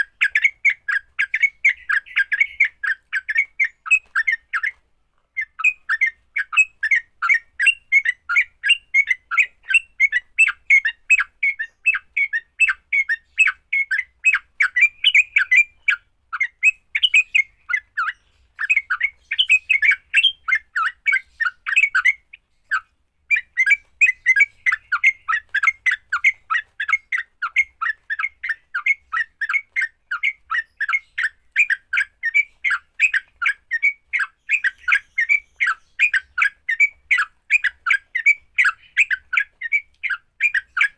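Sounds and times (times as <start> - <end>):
bird chattering call: 0.0 - 4.7, 5.4 - 40.9.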